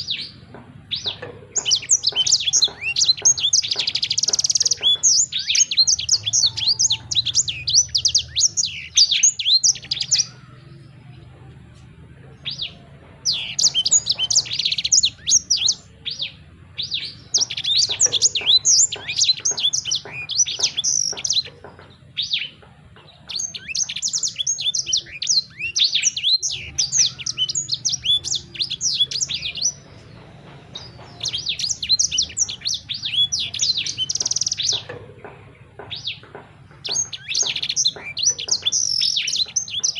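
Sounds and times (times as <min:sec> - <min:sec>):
songbird chirping and twittering: 0:00.0 - 0:39.9.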